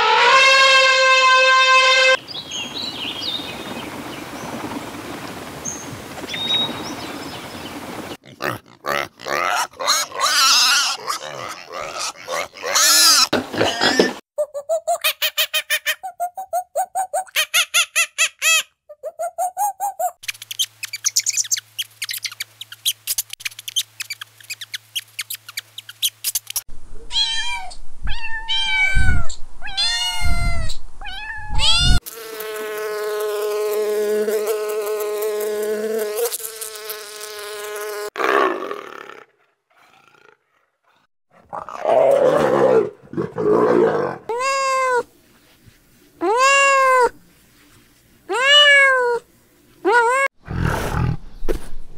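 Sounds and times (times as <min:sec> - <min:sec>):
cat meowing: 0:27.1 - 0:32.0, 0:44.3 - 0:45.1, 0:46.2 - 0:47.2, 0:48.3 - 0:49.2.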